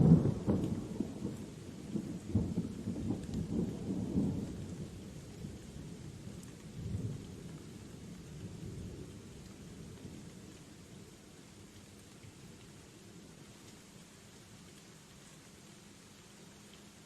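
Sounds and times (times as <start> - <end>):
rolling thunder: 0.0 - 4.8
steady rain: 0.0 - 17.0.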